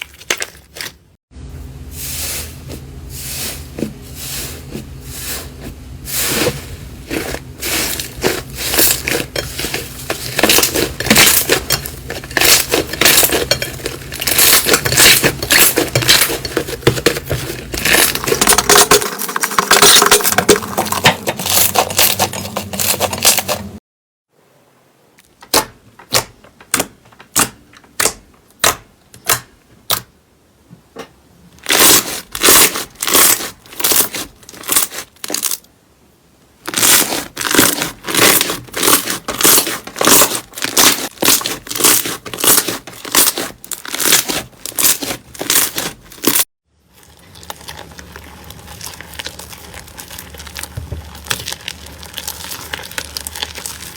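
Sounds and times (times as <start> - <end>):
slime crackling and popping: 7.1 - 23.6, 31.6 - 35.6, 36.6 - 53.9.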